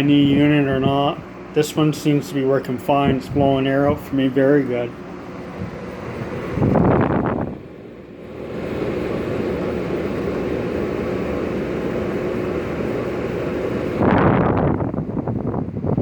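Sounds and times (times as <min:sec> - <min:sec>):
air conditioner fan humming: 0:00.0 - 0:16.0
air rushing across microphone: 0:05.1 - 0:16.0.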